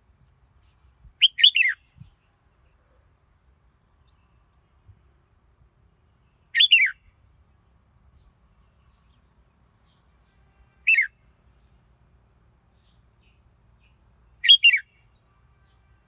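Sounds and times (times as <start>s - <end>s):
bulbul singing: 1.2s - 1.8s, 6.6s - 7.0s, 14.4s - 14.8s.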